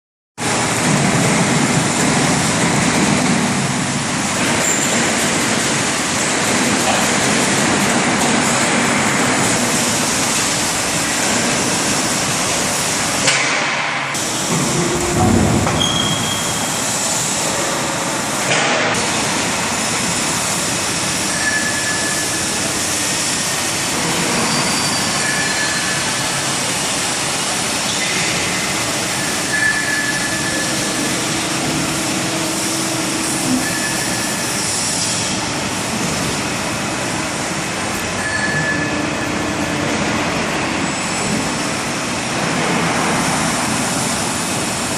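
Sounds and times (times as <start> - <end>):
industrial machinery running: 0.4 - 44.9
faint high squeals: 15.8 - 16.7, 21.3 - 22.4, 29.2 - 31.1, 38.2 - 39.4.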